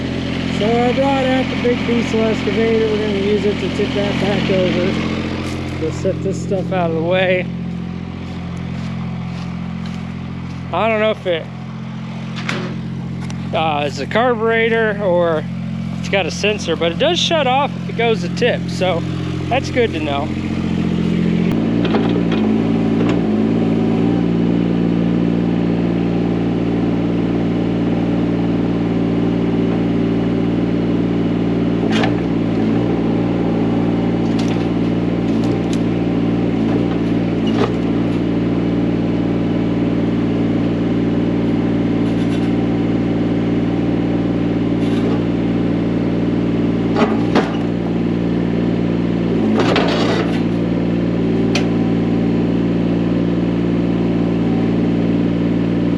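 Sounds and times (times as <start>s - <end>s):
diesel excavator engine running: 0.0s - 55.9s
machinery clanks: 49.4s - 50.6s.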